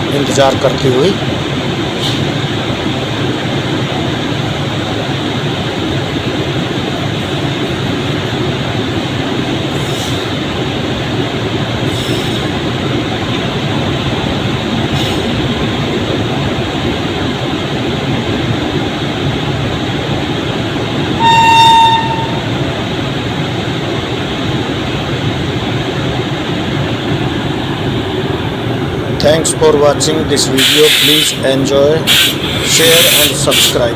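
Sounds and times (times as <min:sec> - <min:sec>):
train wheels on track: 0:00.0 - 0:33.9
train horn blast: 0:21.1 - 0:22.7.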